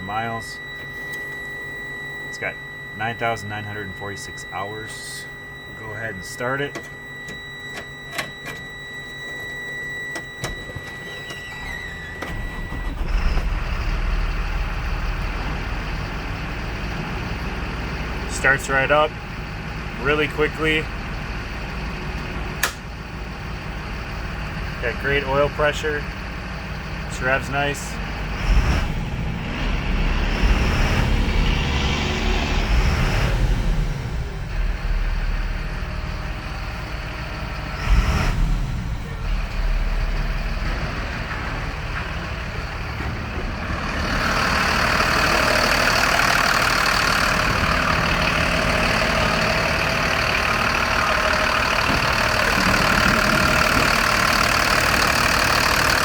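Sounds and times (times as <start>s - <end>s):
steady high tone: 0.0s - 19.2s
diesel engine starting and running: 0.0s - 56.0s
turbo whine: 0.0s - 56.0s
sharp clicks: 22.6s - 22.8s.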